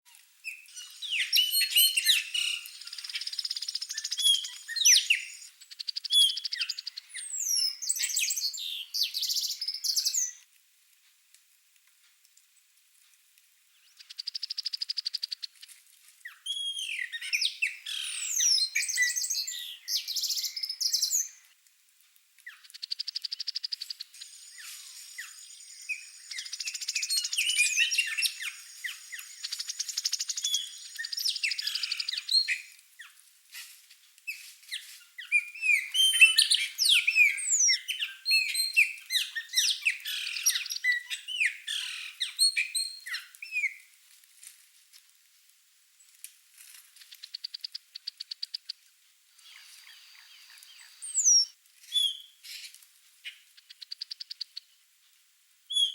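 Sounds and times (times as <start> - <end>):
birds singing and calling: 0.4 - 10.4, 16.2 - 21.5, 22.4 - 33.1, 34.3 - 43.8, 49.4 - 54.8.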